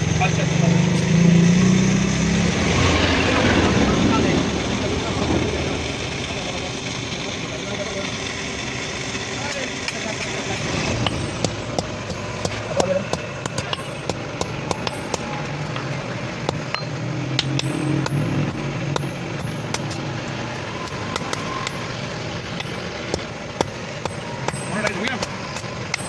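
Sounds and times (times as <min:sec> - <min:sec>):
steady low rumble: 0:02.6 - 0:08.7
metal clinks and knocks: 0:10.6 - 0:26.0.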